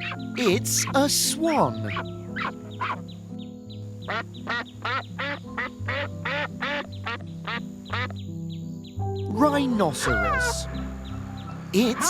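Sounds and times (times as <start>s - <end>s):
swan honking calls: 0.0s - 1.0s, 1.7s - 3.0s, 4.1s - 8.2s, 10.0s - 12.0s
background music with low notes: 0.0s - 12.0s.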